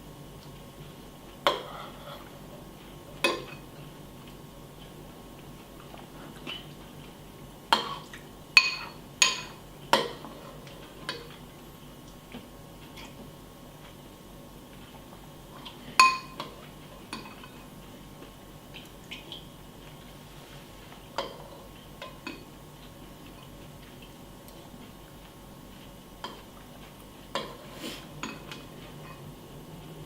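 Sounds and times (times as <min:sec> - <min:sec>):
spoon clinking against bowl: 0:08.6 - 0:10.2, 0:16.0 - 0:16.4.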